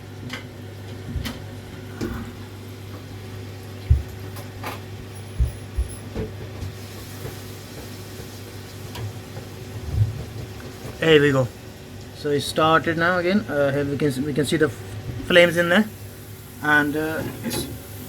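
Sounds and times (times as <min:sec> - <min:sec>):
gas boiler humming: 0:00.0 - 0:18.0.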